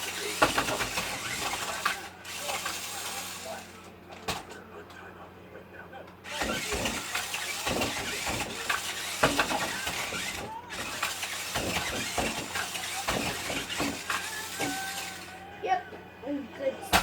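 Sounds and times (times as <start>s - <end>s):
knocks and clattering: 0.0s - 2.0s, 6.3s - 14.9s
toy truck motor and gears: 0.0s - 4.6s, 6.2s - 15.5s.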